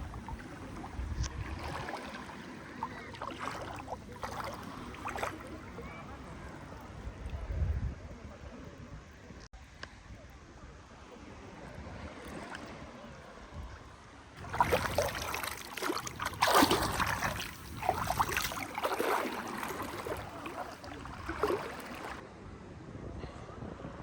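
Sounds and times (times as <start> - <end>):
sea water splashing on shore: 0.0 - 5.8, 14.4 - 22.2.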